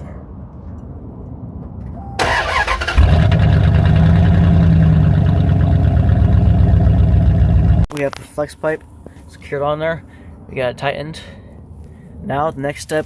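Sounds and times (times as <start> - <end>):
starter cranking: 2.2 - 7.9
truck engine idling loudly: 2.2 - 7.9.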